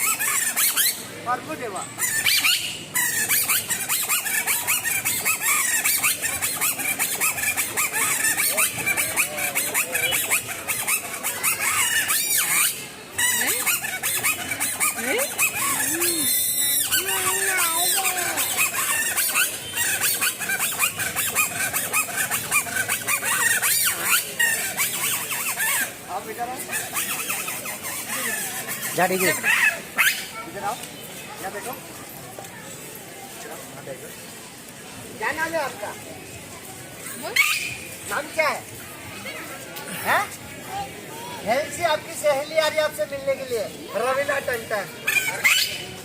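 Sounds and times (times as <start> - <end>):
reed whistle squeaks: 0.0 - 1.0, 1.8 - 25.9.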